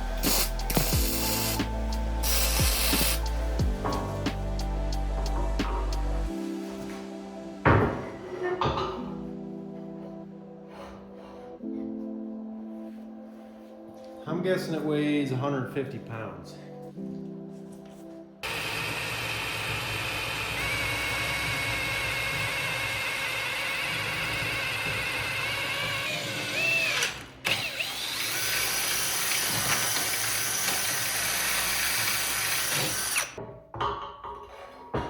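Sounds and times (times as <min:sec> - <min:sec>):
power tool whining on steel: 0:18.4 - 0:33.4.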